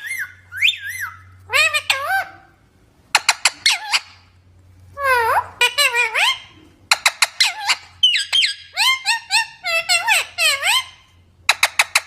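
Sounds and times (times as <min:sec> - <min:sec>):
parrot calling: 0:00.0 - 0:04.4, 0:05.0 - 0:12.0.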